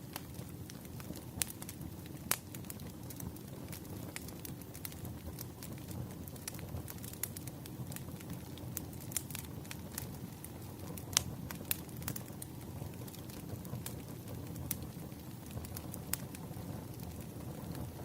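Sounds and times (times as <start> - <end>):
bonfire crackling: 0.0 - 18.0
low rumble of flames: 0.0 - 18.0.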